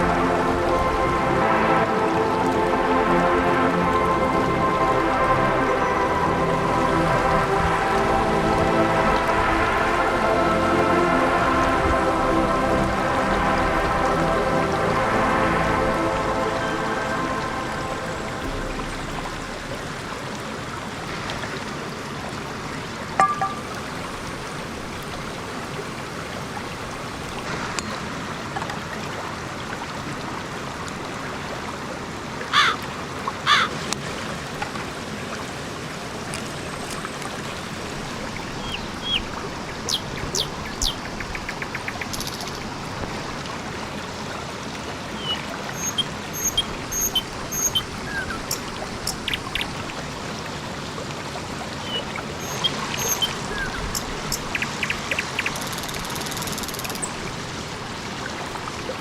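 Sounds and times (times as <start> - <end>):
running water rushing: 0.0 - 59.0
high bird chirps: 45.2 - 49.7, 51.9 - 57.1.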